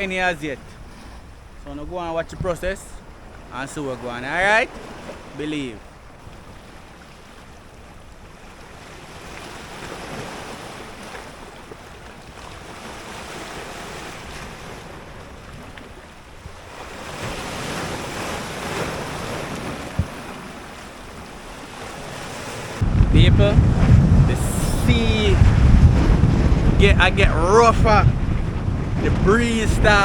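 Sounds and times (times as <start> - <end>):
wind buffeting microphone: 0.0 - 3.8, 10.0 - 30.0
sea surging against shore: 0.0 - 30.0.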